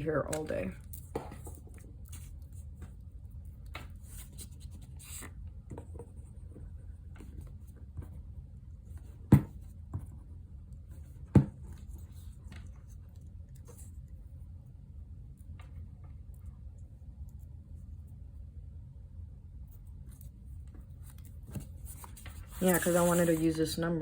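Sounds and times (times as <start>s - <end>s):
paper rustling: 21.5s - 23.8s.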